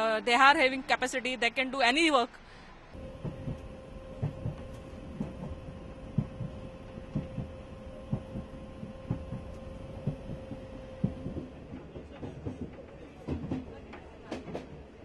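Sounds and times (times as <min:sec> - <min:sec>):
train electric hum: 0:02.7 - 0:15.0
wheels knocking over rail joints: 0:03.0 - 0:14.8.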